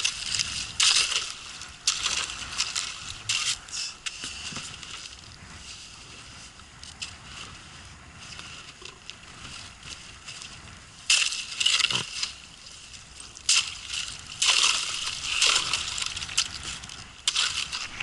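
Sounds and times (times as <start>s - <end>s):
ice cracking bursts: 0.0s - 3.6s, 13.4s - 18.0s
ice crunching against boat hull: 0.0s - 5.3s, 10.5s - 18.0s
water sloshing: 11.1s - 18.0s.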